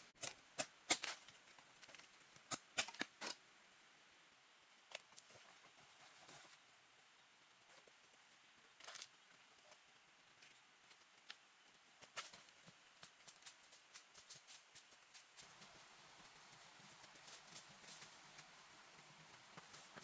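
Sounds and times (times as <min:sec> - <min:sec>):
faint background hiss: 0:00.0 - 0:20.0
faint clicks and taps: 0:08.8 - 0:20.0.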